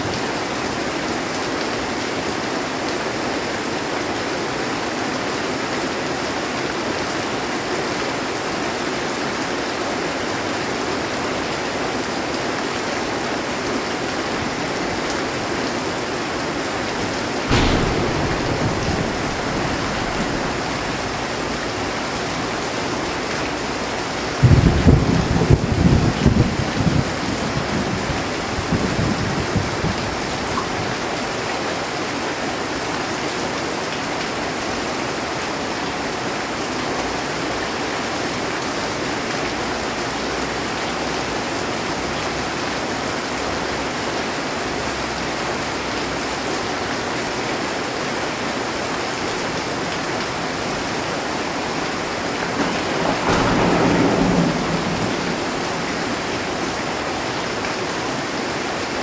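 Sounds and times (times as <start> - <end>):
heavy rain on a metal roof: 0.0 - 59.0
thunder rumbling: 16.4 - 30.4, 50.7 - 59.0.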